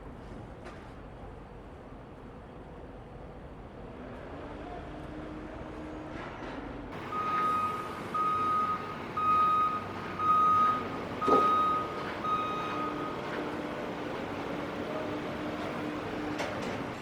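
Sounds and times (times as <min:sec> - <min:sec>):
engine humming: 0:01.5 - 0:17.0
reversing alarm beeping: 0:07.0 - 0:13.4.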